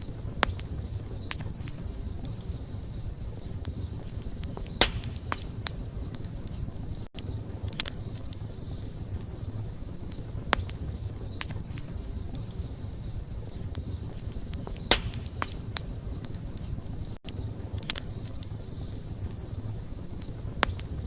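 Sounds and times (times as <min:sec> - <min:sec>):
campfire crackling: 0:00.0 - 0:21.0.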